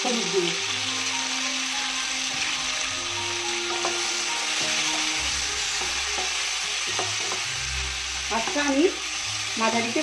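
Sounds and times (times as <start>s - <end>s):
vegetables sizzling in oil: 0.0s - 10.0s
wooden spatula knocking pan: 4.8s - 7.6s.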